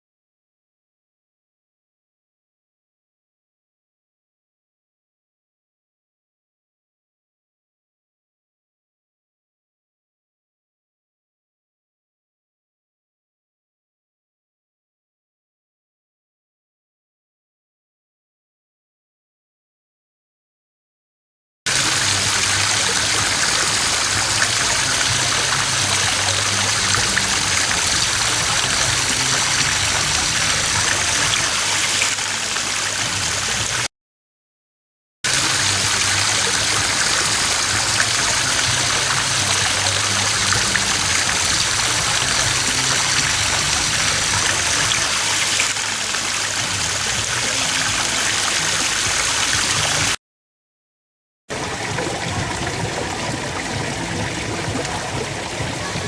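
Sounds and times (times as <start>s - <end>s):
running water rushing: 21.7s - 33.9s, 35.3s - 50.2s, 51.5s - 56.0s.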